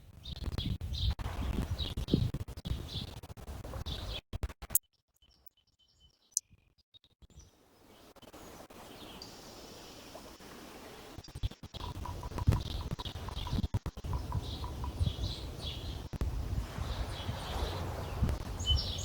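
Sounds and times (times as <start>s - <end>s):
birds chirping: 5.2s - 19.0s
faint outdoor hiss: 7.4s - 19.0s.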